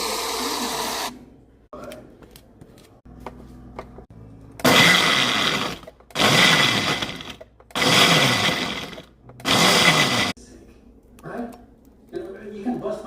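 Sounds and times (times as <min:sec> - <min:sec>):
blender motor bursts: 0:04.6 - 0:10.4.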